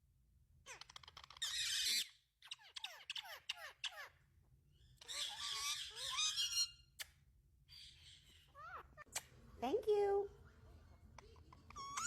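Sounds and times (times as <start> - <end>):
parakeet screeching: 0.7 - 4.2, 4.8 - 7.0, 7.7 - 9.1, 11.5 - 12.0
parakeet chirping: 0.7 - 7.0, 7.7 - 9.4, 11.2 - 12.0.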